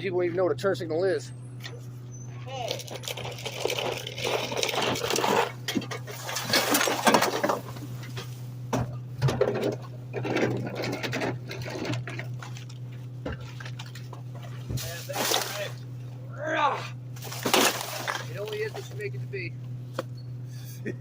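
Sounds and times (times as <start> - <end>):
garbage truck engine hum: 0.0 - 21.0.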